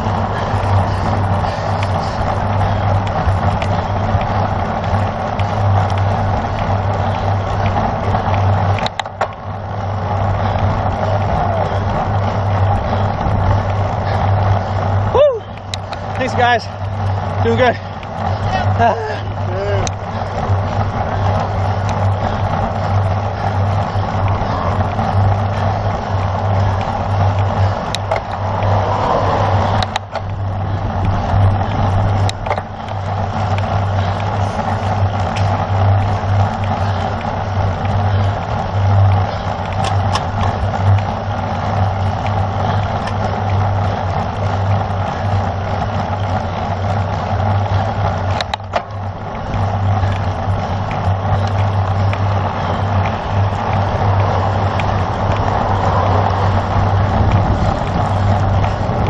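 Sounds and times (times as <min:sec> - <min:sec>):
low hum: 0:00.0 - 0:59.0
wind rushing over microphone: 0:00.0 - 0:59.0
sharp clicks: 0:29.8 - 0:30.4
wind on microphone: 0:49.1 - 0:59.0.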